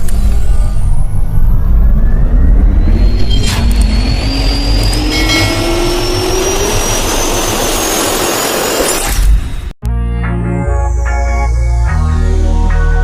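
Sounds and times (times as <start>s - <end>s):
jet airliner engines whining: 0.0s - 9.4s.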